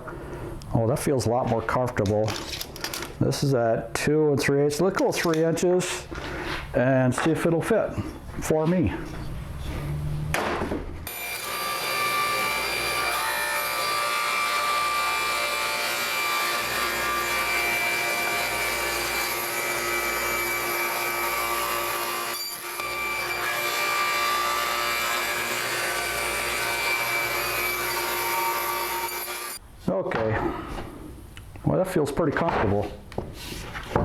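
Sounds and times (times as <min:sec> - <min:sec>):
power saw cutting wood: 0:11.1 - 0:29.6.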